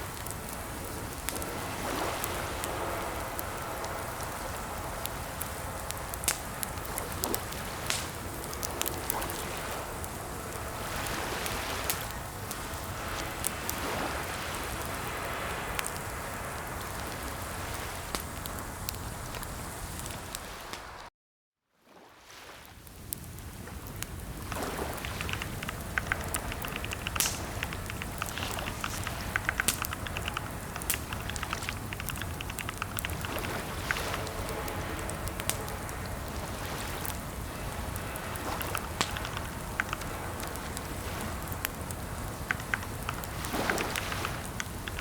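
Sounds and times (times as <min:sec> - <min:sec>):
steady hiss: 0:00.0 - 0:21.1, 0:22.9 - 0:45.0
keyboard typing: 0:24.5 - 0:34.2.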